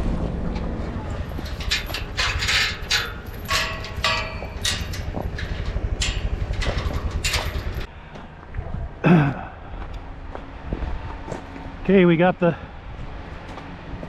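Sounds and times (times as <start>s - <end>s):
vehicle engine running low: 0.0s - 14.0s
loose metal rattling and clanking: 0.3s - 7.9s
short metallic ring: 1.0s - 7.9s.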